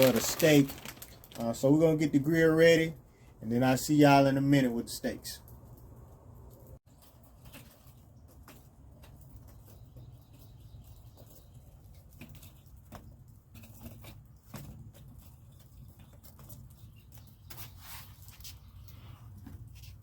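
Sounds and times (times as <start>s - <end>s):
rain dripping and pattering: 0.0s - 2.9s.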